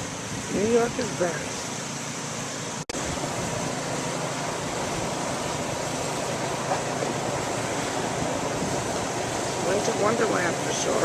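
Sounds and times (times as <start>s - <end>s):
distant traffic: 0.0s - 11.0s
wind on microphone: 2.9s - 11.0s.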